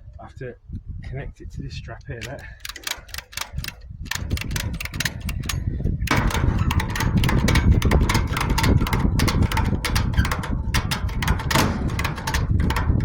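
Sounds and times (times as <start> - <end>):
ratchet strap clicking: 2.2 - 13.0
scrap metal clatter: 4.4 - 13.0.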